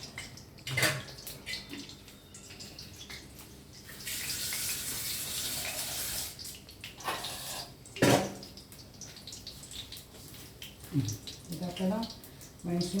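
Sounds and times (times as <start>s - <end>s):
kitchen tap running: 3.8s - 13.0s.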